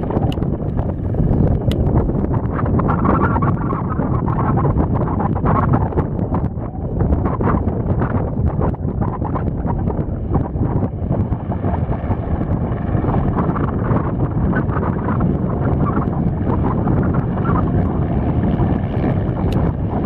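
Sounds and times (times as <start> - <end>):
helicopter rotor and engine: 0.0 - 20.0
wind buffeting microphone: 0.0 - 20.0.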